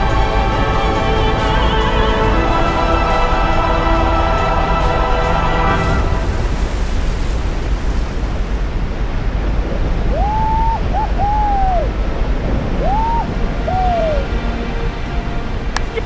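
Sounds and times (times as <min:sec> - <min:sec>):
loud rush of water: 0:00.0 - 0:16.0
high arching whoops: 0:10.1 - 0:12.0, 0:12.8 - 0:14.3.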